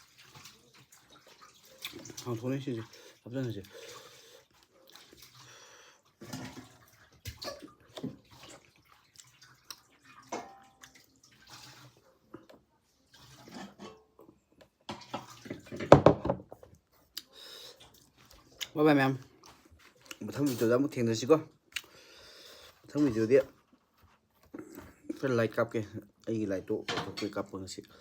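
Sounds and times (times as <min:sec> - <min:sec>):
wet chewing: 0:03.6 - 0:05.4, 0:07.3 - 0:11.4, 0:17.0 - 0:20.3, 0:21.7 - 0:22.8
mouth clicks and smacks: 0:21.7 - 0:21.9.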